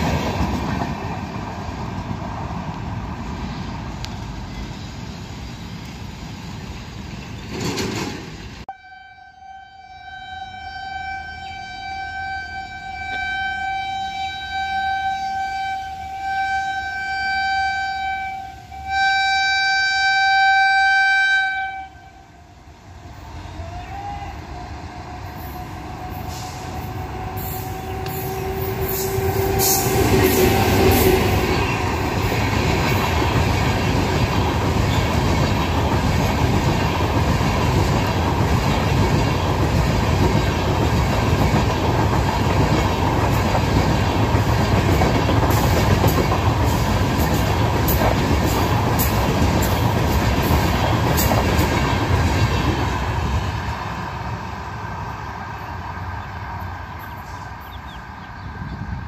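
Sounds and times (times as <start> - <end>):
train running past: 0.0 - 9.1, 9.9 - 59.0
wheels clicking over rail joints: 7.2 - 8.6.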